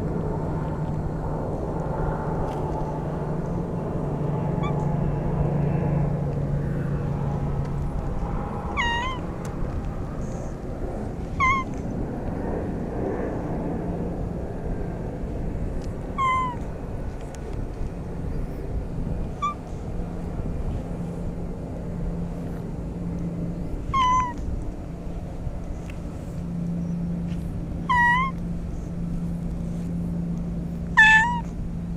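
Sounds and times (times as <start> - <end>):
steady low hum: 0.0 - 31.9
cat meowing: 8.7 - 9.2, 11.4 - 11.7, 16.2 - 16.6, 19.4 - 19.6, 23.9 - 24.4, 27.9 - 28.4, 31.0 - 31.5.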